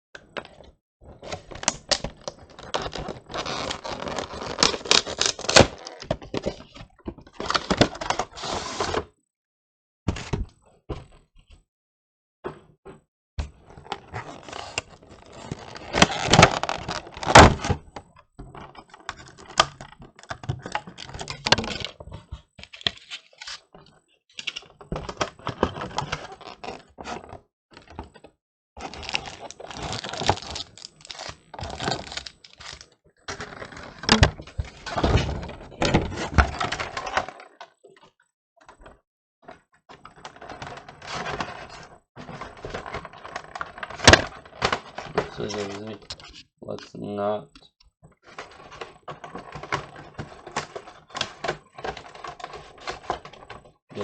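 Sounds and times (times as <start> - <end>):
box rustling: 1.5 - 9.0, 13.8 - 17.7, 28.8 - 37.5, 40.2 - 46.4.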